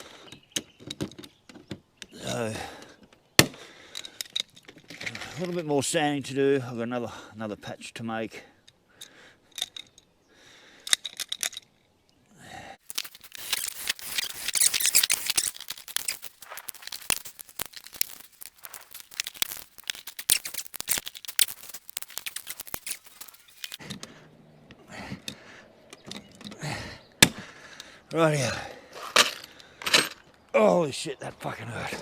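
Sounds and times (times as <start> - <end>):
hand tool scraping and crackling: 12.8 - 23.8
sharp clicks: 12.8 - 23.8.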